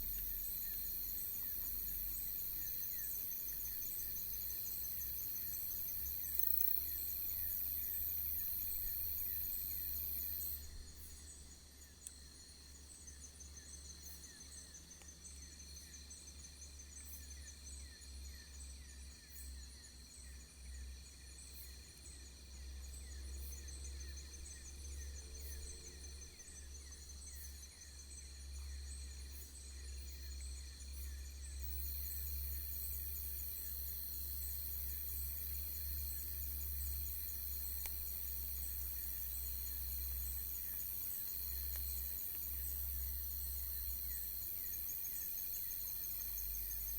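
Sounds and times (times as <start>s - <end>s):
constant low rumble: 0.0s - 9.8s
insects chirping: 0.0s - 46.9s.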